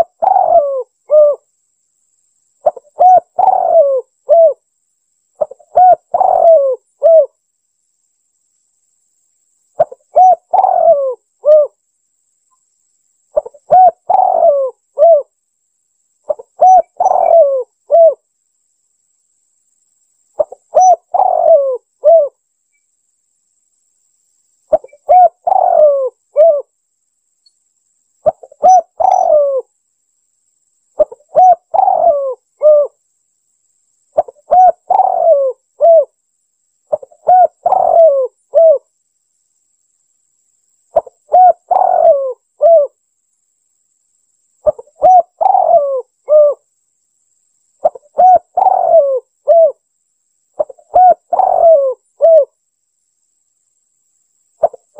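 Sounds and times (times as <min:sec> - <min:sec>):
dove cooing: 0:00.0 - 0:01.5, 0:02.6 - 0:04.6, 0:05.4 - 0:07.4, 0:09.8 - 0:11.8, 0:13.4 - 0:15.3, 0:16.3 - 0:18.2, 0:20.4 - 0:22.4, 0:24.7 - 0:26.7, 0:28.2 - 0:29.7, 0:31.0 - 0:33.0, 0:34.2 - 0:36.2, 0:36.9 - 0:38.9, 0:41.0 - 0:43.0, 0:44.6 - 0:46.6, 0:47.8 - 0:49.8, 0:50.6 - 0:52.6.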